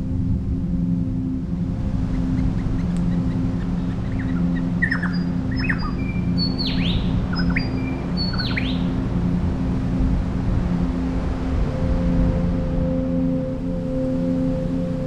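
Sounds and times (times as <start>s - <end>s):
steady low drone: 0.0s - 15.0s
bird calling with whistles: 2.4s - 8.9s.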